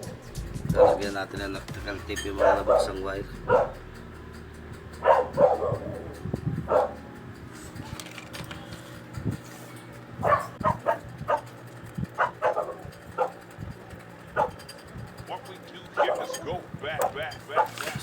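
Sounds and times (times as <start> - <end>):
dog barking: 0.0 - 1.1, 2.3 - 4.0, 5.0 - 7.0, 10.2 - 13.4, 14.3 - 14.7, 15.9 - 18.0.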